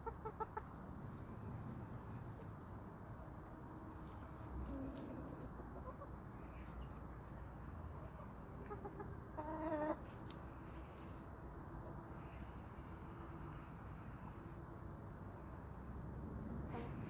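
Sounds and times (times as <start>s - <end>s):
chickens clucking softly: 0.0s - 0.9s, 2.6s - 11.1s.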